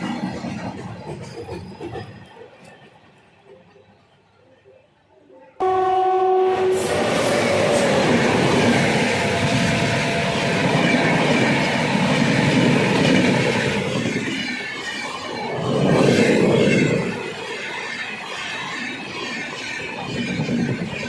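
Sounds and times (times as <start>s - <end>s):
train horn: 5.6s - 8.0s
train rumbling past: 5.6s - 21.0s.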